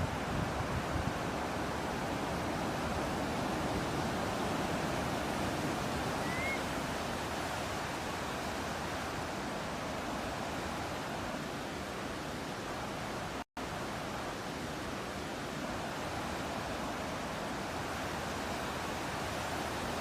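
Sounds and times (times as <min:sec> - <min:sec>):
ocean surf: 0:00.0 - 0:20.0
rising bird chirp: 0:06.2 - 0:06.7.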